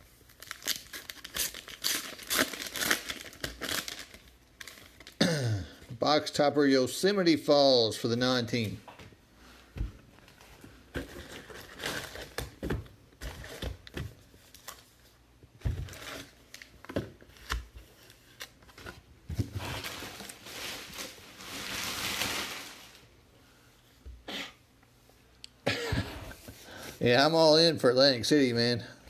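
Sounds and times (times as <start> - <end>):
wrapper crinkling: 0.3 - 5.2, 19.6 - 23.1.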